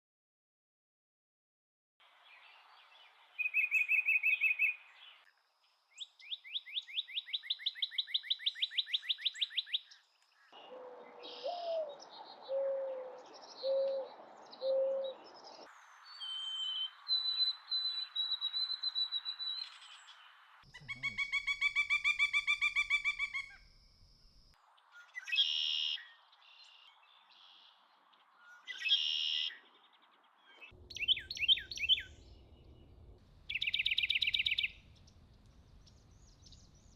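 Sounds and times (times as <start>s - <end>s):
high bird trill: 33.5s - 35.0s.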